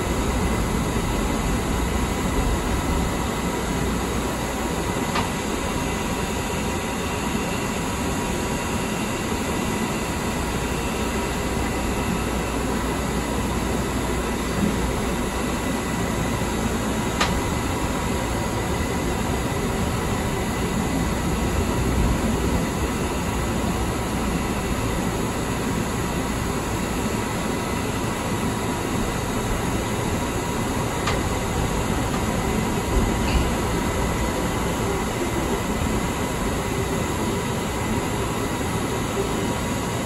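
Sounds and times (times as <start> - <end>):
train wheels rumbling on rails: 26.9 - 40.0.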